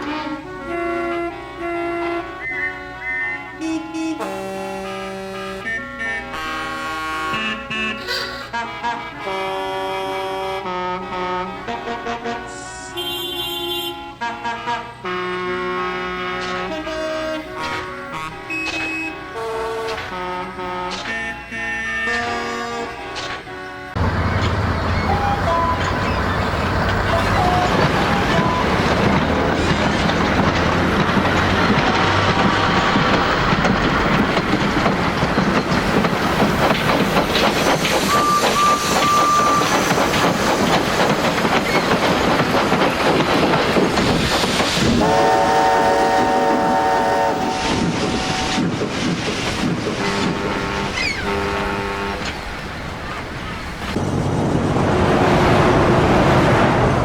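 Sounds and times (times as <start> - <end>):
train whistle: 0.0 - 32.8, 37.4 - 40.8, 44.9 - 48.7, 49.9 - 52.4
train wheels rumbling on rails: 15.1 - 57.0.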